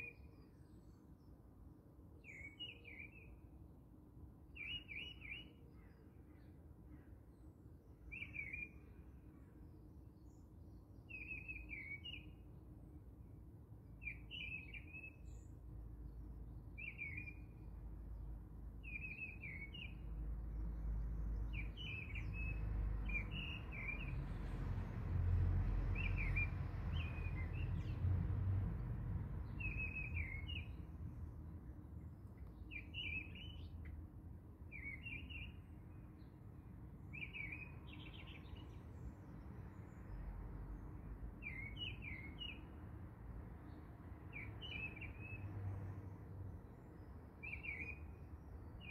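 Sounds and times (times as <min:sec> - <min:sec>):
small bird chirping: 0:29.4 - 0:30.8.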